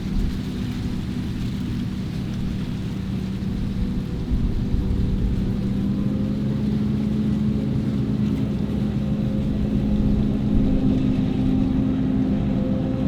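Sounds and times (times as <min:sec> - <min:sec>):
heavy diesel engine running: 0:00.0 - 0:13.0.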